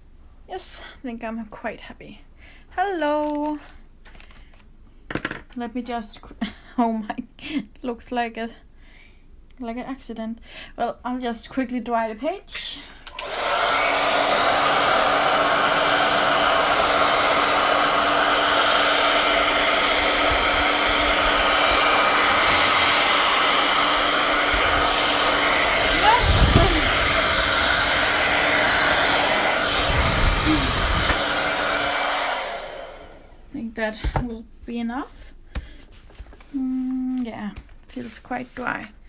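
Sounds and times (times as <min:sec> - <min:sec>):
electric dryer blowing: 0:13.1 - 0:33.5.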